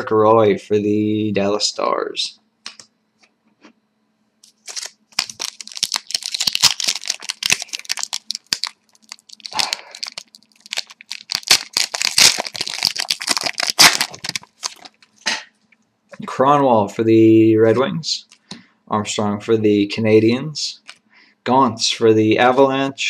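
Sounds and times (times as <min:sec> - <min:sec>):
wrapper being torn and crinkled: 0:04.4 - 0:15.1.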